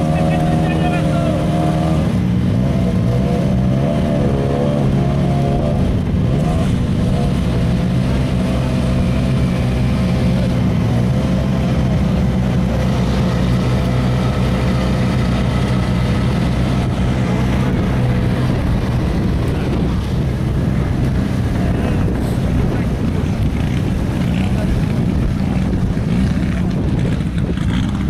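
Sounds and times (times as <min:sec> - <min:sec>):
car engine idling: 0:05.8 - 0:28.0.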